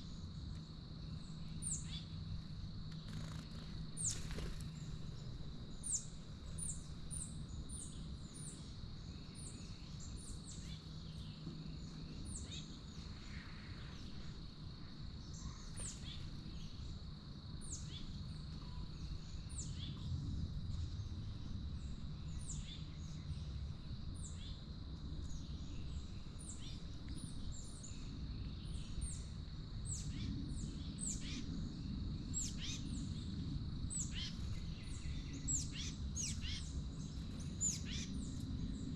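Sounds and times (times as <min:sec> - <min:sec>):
low background rumble: 0:00.0 - 0:38.9
steady high-pitched hum: 0:00.0 - 0:38.9
small birds chirping: 0:01.2 - 0:14.3, 0:34.0 - 0:38.9.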